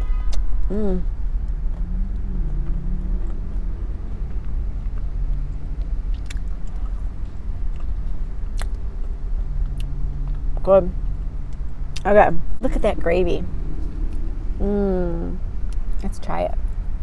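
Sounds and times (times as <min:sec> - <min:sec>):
person humming mmm: 0:00.7 - 0:03.8, 0:14.6 - 0:15.4
person chewing food: 0:01.4 - 0:10.6.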